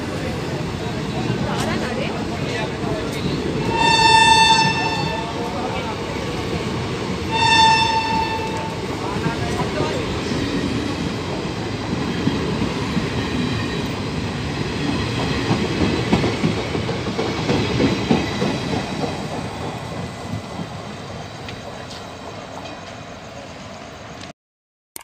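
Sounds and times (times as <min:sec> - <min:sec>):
train wheels clattering over rail joints: 0:14.8 - 0:20.8.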